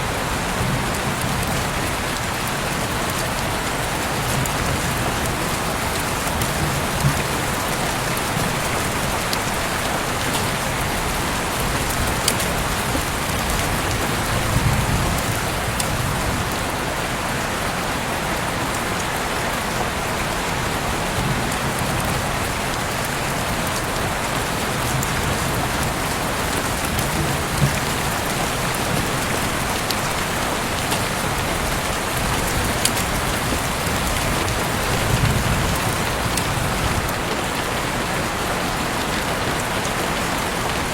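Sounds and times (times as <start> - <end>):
heavy rain falling: 0.0 - 40.9
rain drop ticks: 0.9 - 16.6, 21.4 - 37.7.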